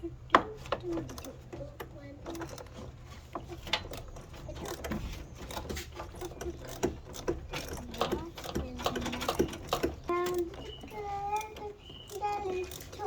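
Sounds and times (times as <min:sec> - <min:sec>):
clicking and rattling: 0:00.0 - 0:13.0
washing machine motor hum: 0:00.0 - 0:13.0.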